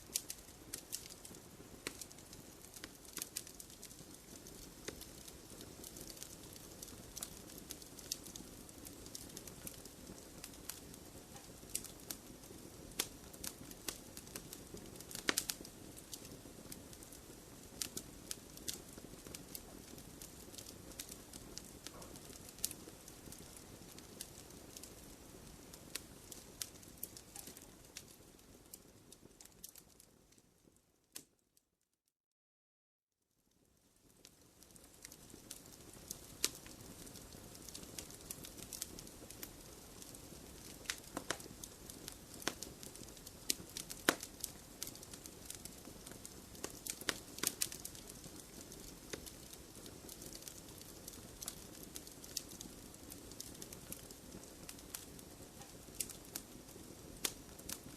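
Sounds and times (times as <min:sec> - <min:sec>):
soft steady hiss: 0:00.0 - 0:31.4, 0:33.3 - 0:57.9
wood fire crackling: 0:00.0 - 0:31.4, 0:33.5 - 0:57.9.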